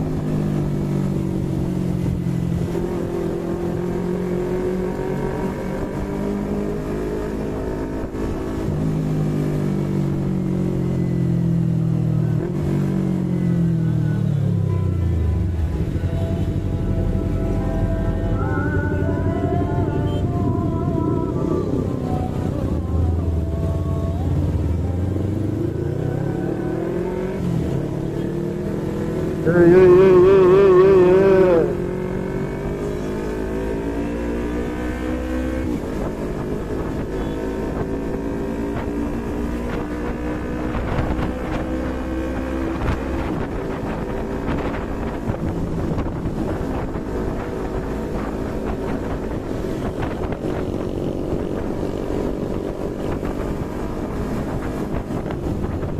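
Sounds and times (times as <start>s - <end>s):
motorcycle engine through gears: 0.0s - 55.9s
loud warbling horn: 14.8s - 22.6s, 29.5s - 31.8s.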